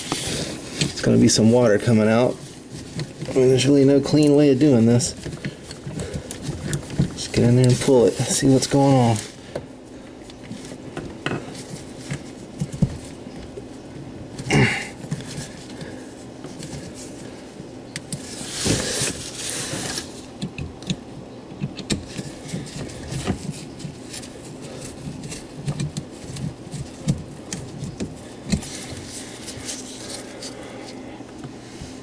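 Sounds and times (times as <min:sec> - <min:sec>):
hands working drain hose: 0:00.0 - 0:32.0
steady low hum: 0:00.0 - 0:32.0.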